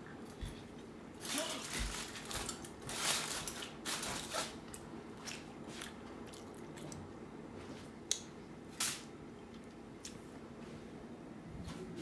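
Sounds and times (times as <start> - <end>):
soft chewing: 4.6 - 8.3.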